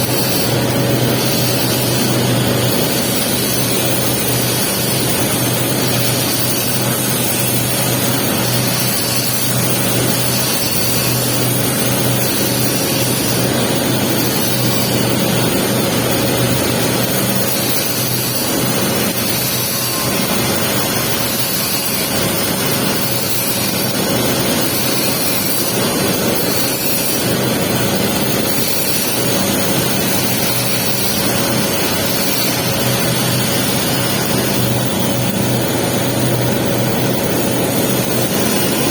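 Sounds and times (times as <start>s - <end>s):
welding arc sizzling: 0.0s - 38.9s.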